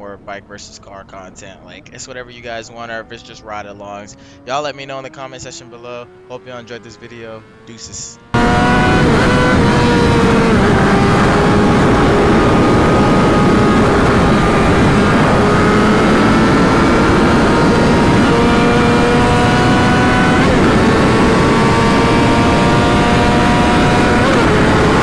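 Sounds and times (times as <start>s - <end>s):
motorcycle engine accelerating: 2.5s - 25.0s
heavy wind rush: 8.3s - 25.0s.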